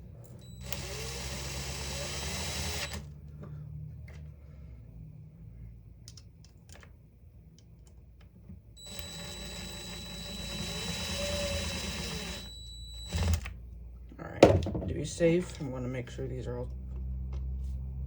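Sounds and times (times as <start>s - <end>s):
small electric motor whining: 0.4s - 3.1s, 8.8s - 13.5s.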